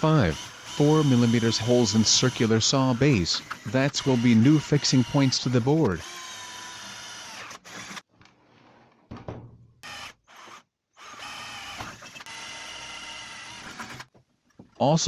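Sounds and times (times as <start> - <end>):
electric drill drilling metal: 0.0 - 8.1, 9.8 - 14.1.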